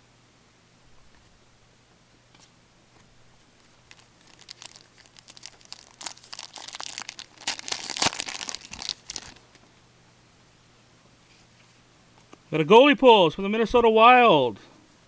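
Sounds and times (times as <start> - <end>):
card pack wrapper crinkling: 3.8 - 9.6.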